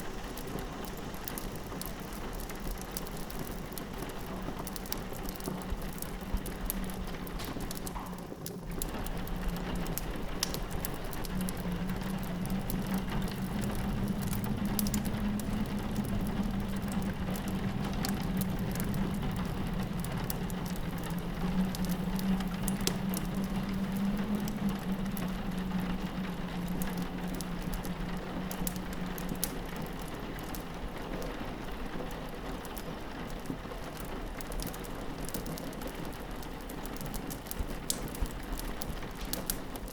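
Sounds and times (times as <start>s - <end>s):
fireplace crackling: 0.0s - 39.9s
rain pattering on window: 0.0s - 39.9s
wind howling: 8.9s - 32.3s.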